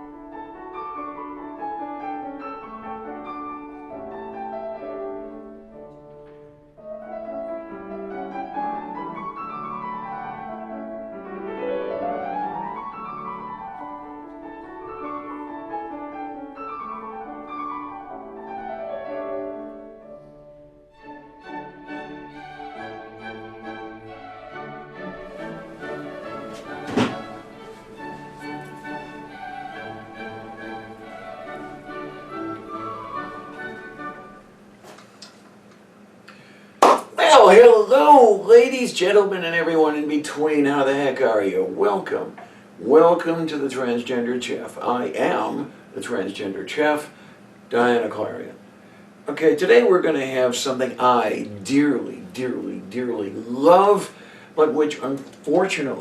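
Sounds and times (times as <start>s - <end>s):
piano and strings music: 0.0s - 35.7s.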